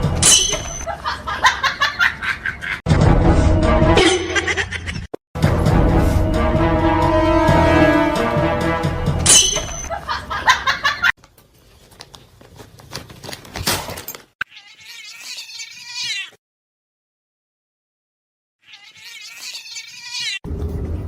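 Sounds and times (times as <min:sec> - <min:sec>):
cat meowing: 0:14.4 - 0:16.4, 0:18.6 - 0:20.4.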